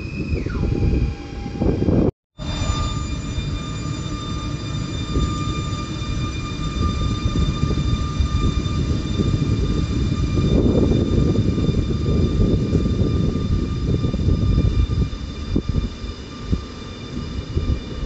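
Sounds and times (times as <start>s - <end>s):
high train whine: 0.0s - 18.0s
train low rumble: 0.0s - 18.0s.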